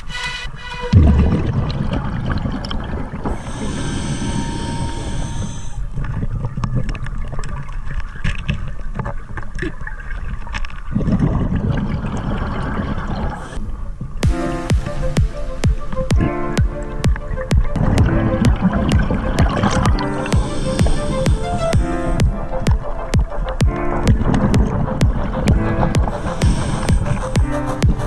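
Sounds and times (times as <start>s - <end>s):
rumble of exhaled bubbles: 0.9s - 14.4s, 16.2s - 28.0s
scuba regulator hissing inhalation: 3.3s - 5.9s, 13.3s - 13.7s, 19.6s - 22.6s, 25.8s - 28.0s.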